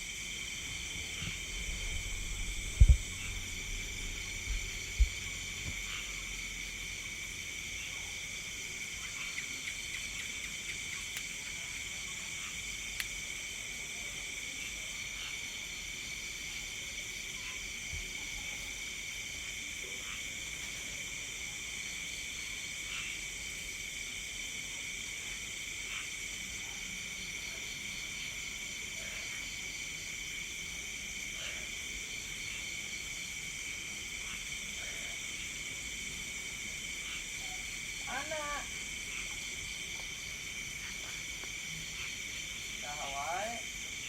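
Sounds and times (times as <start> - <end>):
night insects trilling: 0.0 - 44.0
low thumps: 1.0 - 5.8.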